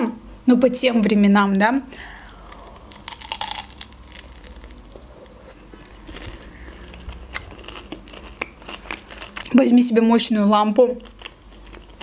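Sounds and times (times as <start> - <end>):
crunching fried pie crust: 2.0 - 10.3
chewing: 2.5 - 9.6, 11.0 - 12.0.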